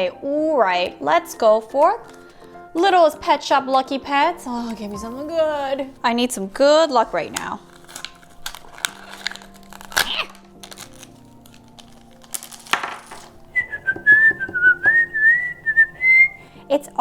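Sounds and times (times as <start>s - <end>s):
plastic packaging crinkling: 1.7s - 2.5s, 4.6s - 13.9s
wavering whistle: 13.5s - 16.4s.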